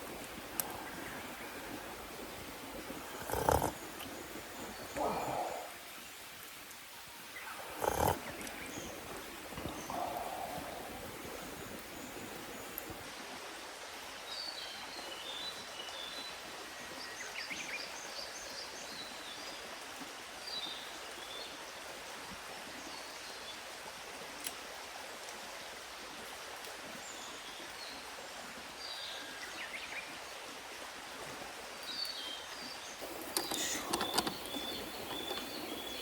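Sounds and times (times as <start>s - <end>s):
small birds chirping: 0.0s - 13.0s, 31.9s - 36.0s
forest stream rushing: 0.0s - 36.0s.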